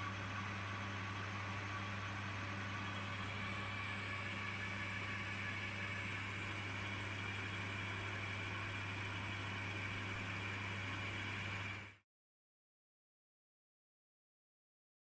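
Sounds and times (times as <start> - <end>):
metal lathe running: 0.0 - 12.0.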